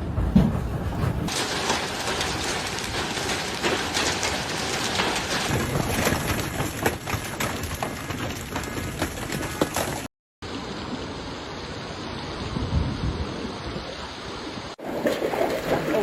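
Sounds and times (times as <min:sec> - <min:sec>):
heavy rain pouring: 0:01.3 - 0:13.9.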